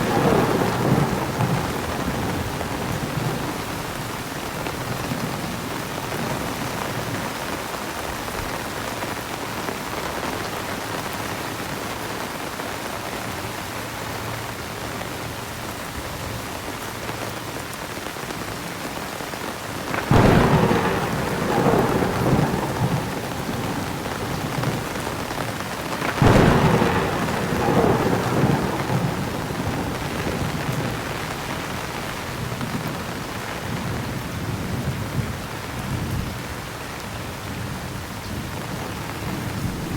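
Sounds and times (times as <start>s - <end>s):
thunder claps rolling: 0.0s - 7.4s, 19.8s - 35.3s, 39.2s - 39.9s
heavy rain pouring: 0.0s - 39.9s.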